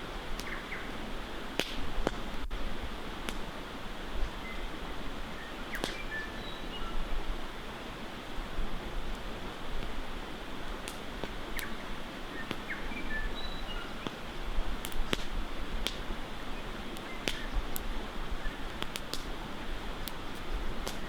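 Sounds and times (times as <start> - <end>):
wood fire crackling: 0.0 - 6.1, 8.2 - 21.0
bird chirps: 5.4 - 7.0, 11.6 - 14.2.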